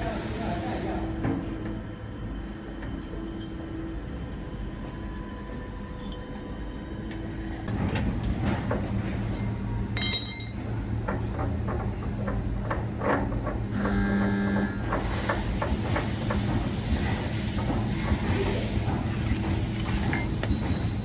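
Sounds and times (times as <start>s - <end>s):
ringing metal clink: 10.0s - 10.7s.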